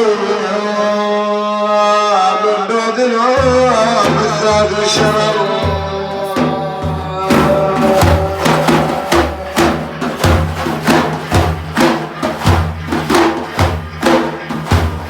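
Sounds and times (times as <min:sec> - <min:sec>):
frame drums beating: 0:03.4 - 0:15.0.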